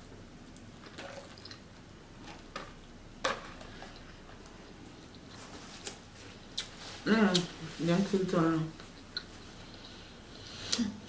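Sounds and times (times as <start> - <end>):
person chewing salad: 0.4 - 1.7, 3.6 - 7.6, 8.8 - 10.8.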